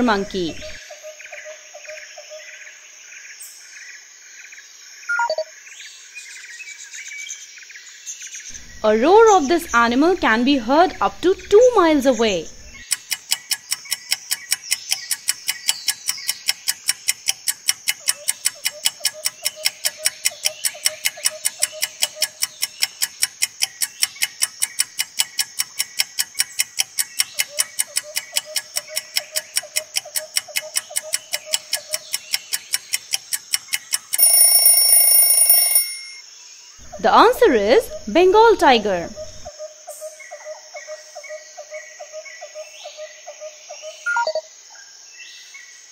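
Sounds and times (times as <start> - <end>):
fast ticking timer: 10.6 - 36.2
ringing alarm tone: 28.6 - 36.2.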